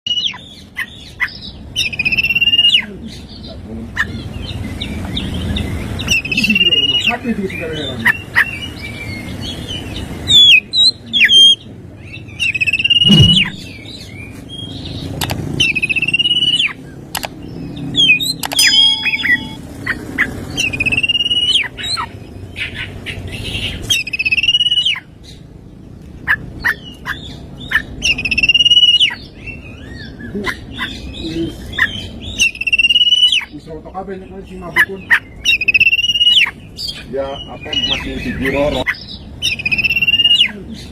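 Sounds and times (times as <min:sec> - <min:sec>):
bird singing whistled phrases: 0:10.3 - 0:11.6, 0:12.4 - 0:13.7, 0:18.0 - 0:19.6, 0:20.6 - 0:21.7, 0:28.0 - 0:29.2, 0:32.4 - 0:33.5, 0:35.5 - 0:36.5, 0:39.4 - 0:40.5.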